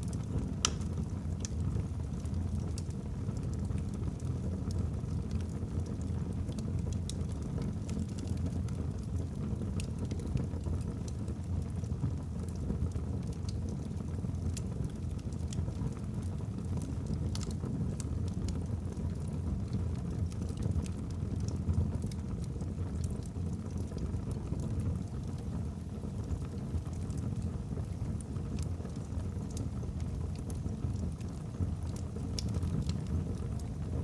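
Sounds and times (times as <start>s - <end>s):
fire flames rumbling: 0.0s - 34.0s.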